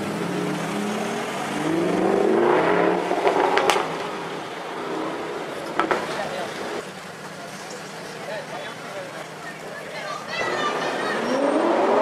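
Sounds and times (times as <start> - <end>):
supercar engine accelerating: 0.0 - 6.2, 10.4 - 12.0
sharp exhaust pops: 3.2 - 4.1.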